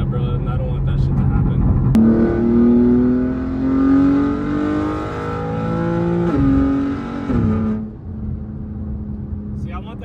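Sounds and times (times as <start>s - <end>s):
car engine accelerating hard: 0.1s - 9.6s.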